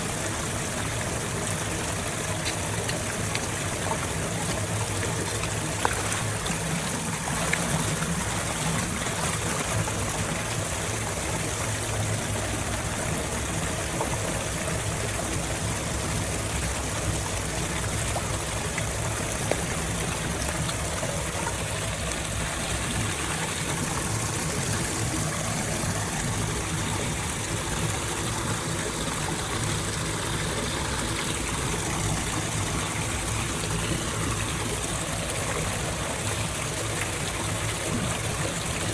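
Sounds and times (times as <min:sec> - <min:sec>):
water flowing through drain: 0:00.0 - 0:38.9.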